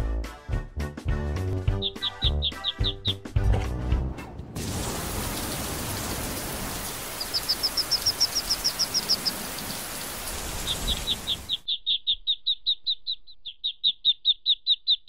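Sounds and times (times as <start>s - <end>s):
ducklings peeping: 1.7s - 3.3s, 7.0s - 9.8s, 10.6s - 15.0s
steady rain hiss: 4.4s - 11.6s.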